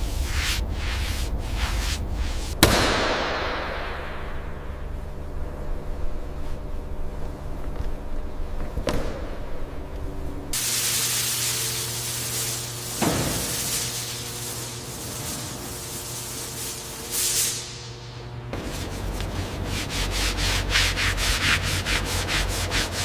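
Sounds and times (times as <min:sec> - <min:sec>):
steady low tone: 0:00.0 - 0:10.6
low mechanical hum: 0:00.0 - 0:23.0
spray hissing: 0:10.6 - 0:17.9.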